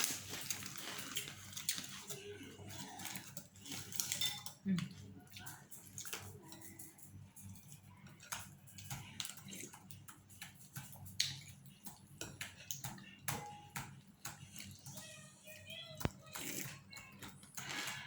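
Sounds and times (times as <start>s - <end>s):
utensils clicking against a bowl: 0.0s - 18.0s
eating mouth sounds: 8.3s - 9.9s, 16.3s - 16.9s.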